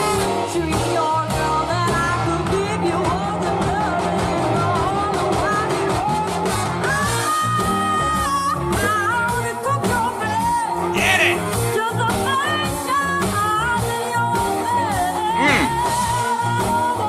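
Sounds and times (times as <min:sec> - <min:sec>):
girl singing soul ballad: 0:00.1 - 0:10.9, 0:11.6 - 0:17.0
band playing: 0:08.7 - 0:12.4, 0:15.1 - 0:16.4.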